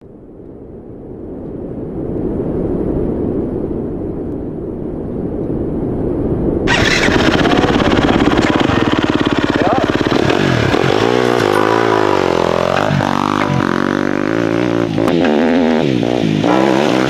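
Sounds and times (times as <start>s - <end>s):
dirt bike engine rumble: 6.7s - 17.0s.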